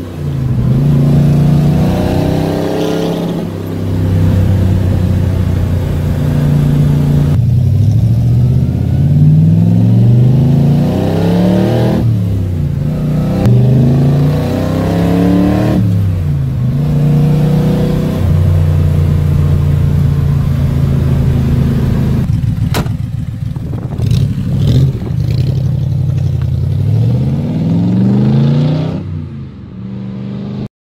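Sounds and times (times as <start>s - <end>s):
car engine shifting gears: 0.0s - 29.2s.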